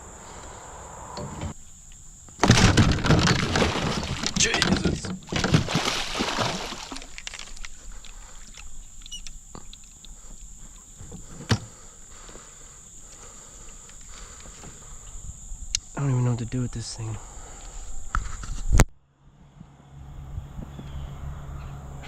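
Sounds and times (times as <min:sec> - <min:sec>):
insects droning: 0:00.0 - 0:22.0
gear rustling and knocking: 0:02.4 - 0:05.8.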